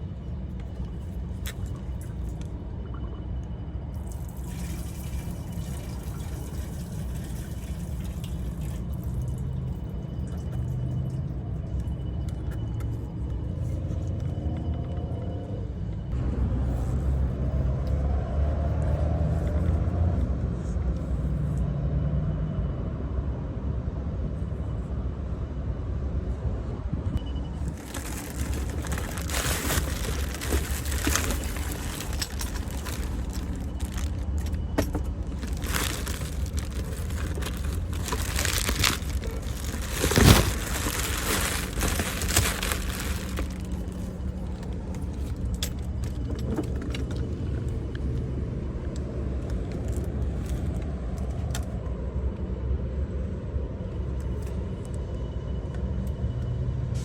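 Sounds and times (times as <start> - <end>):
steady low rumble: 23.4 - 55.7
metal tools clinking and rattling: 27.6 - 43.8.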